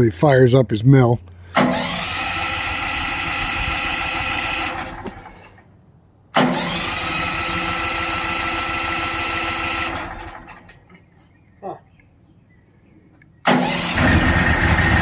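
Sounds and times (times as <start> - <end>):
engine starter cranking: 1.5 - 5.6, 6.3 - 10.9, 13.5 - 15.0.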